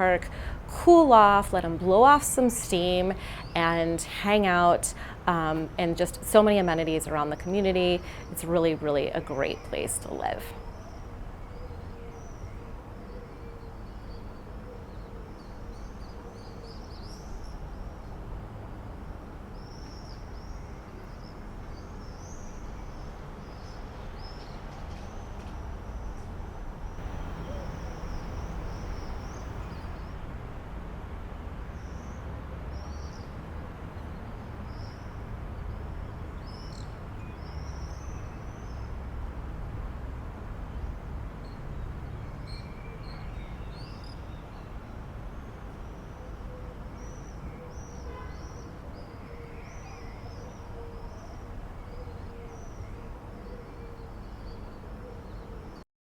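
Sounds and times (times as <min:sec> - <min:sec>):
birds chirping and singing: 0:27.0 - 0:30.0
steady low rumble: 0:27.0 - 0:30.6.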